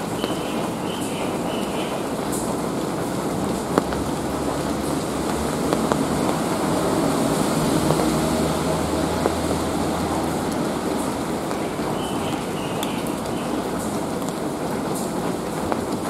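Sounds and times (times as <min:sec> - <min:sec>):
low hum of traffic: 0:00.0 - 0:16.0
steady rain hiss: 0:00.0 - 0:16.0
water drips ticking: 0:00.0 - 0:16.0
vehicle passing: 0:03.0 - 0:12.6.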